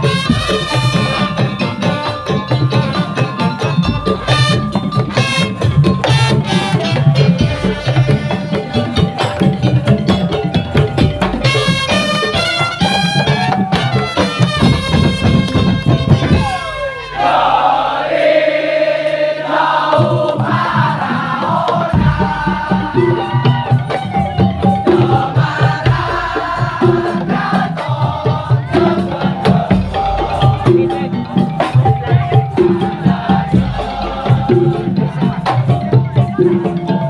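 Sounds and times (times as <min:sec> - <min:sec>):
wooden slit drums and drums: 0:00.0 - 0:37.0.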